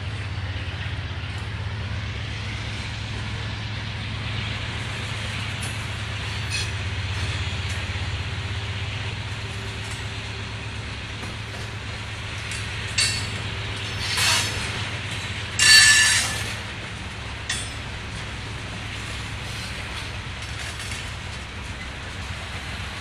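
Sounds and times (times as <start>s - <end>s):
freight cars rumbling past: 0.0s - 23.0s
metallic wheel squeals: 6.3s - 6.8s, 12.5s - 14.8s, 15.6s - 16.6s.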